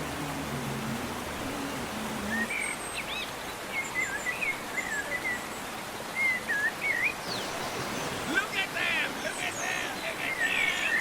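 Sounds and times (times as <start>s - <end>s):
songbird warbling chirps: 6.1s - 8.2s.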